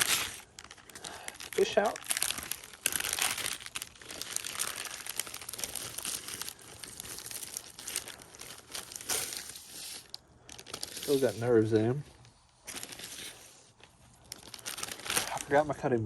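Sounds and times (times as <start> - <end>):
wrapping rustling and crackling: 0.0 - 16.0.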